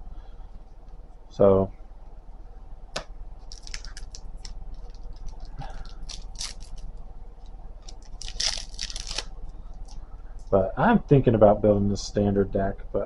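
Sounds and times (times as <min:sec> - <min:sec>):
trading cards clicking and rustling: 0:03.4 - 0:10.0.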